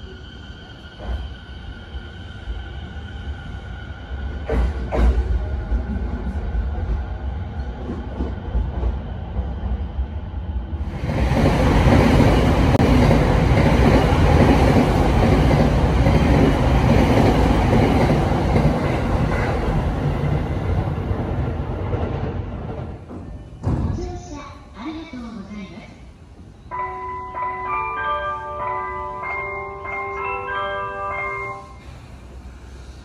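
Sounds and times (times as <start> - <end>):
train wheels clattering on rails: 4.4 - 5.8.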